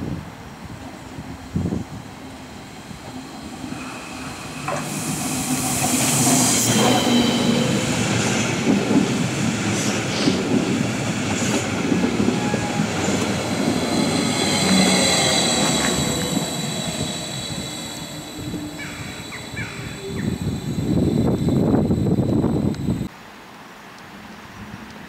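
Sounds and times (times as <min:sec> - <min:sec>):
train rumbling past: 0:00.0 - 0:23.1
high wheel squeal: 0:03.2 - 0:08.2, 0:12.2 - 0:23.1.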